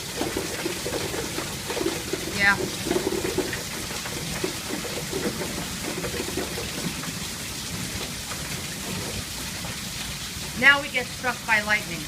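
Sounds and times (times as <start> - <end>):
rain pattering on surfaces: 0.0 - 12.0.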